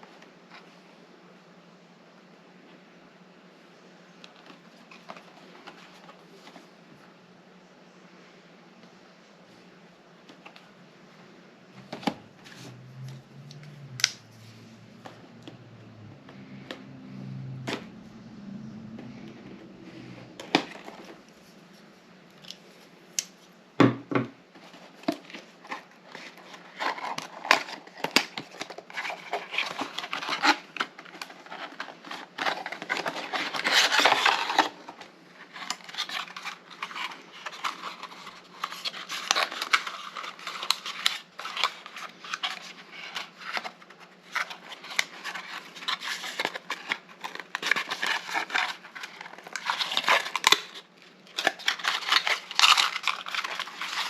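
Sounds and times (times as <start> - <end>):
cardboard box being opened: 24.6 - 50.6.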